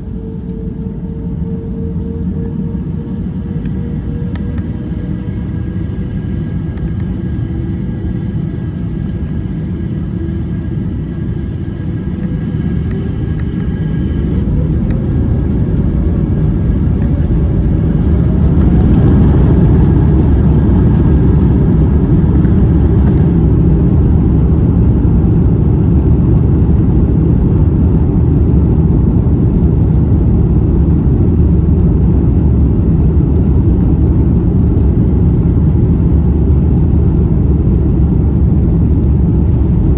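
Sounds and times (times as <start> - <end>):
jet engines spooling up: 0.0 - 27.7.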